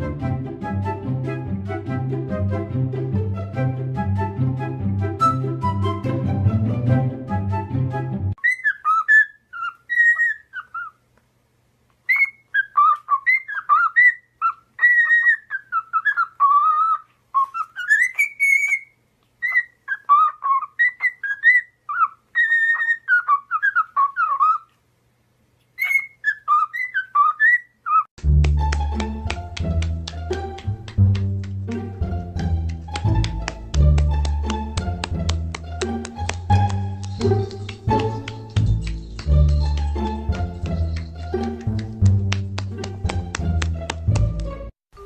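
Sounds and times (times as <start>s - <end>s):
music: 0.0s - 8.4s, 28.2s - 44.8s
bird whistling and warbling: 8.4s - 11.0s, 12.1s - 24.7s, 25.8s - 28.1s.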